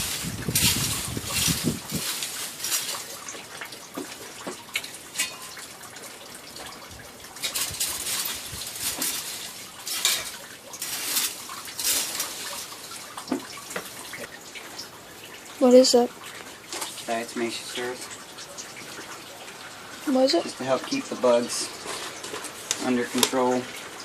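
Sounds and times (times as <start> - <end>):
rustling and scraping: 0.0 - 5.6, 7.4 - 14.3, 20.7 - 23.4.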